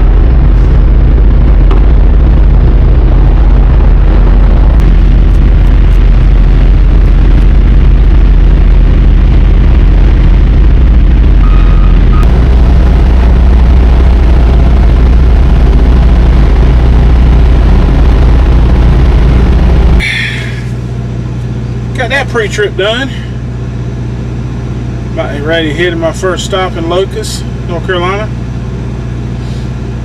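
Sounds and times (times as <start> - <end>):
diesel truck engine rumbling: 0.0 - 30.0
brief tone: 11.4 - 12.3.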